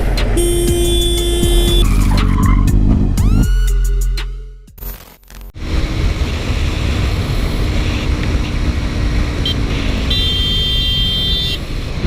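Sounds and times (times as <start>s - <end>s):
short high beep: 0.4s - 1.9s
held high tone: 0.4s - 4.0s
wind rush: 5.6s - 9.2s.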